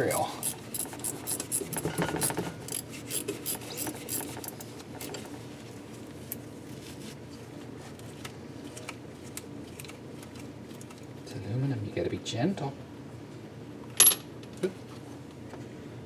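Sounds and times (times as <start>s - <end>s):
bolt scraping in metal threads: 0.0s - 5.2s.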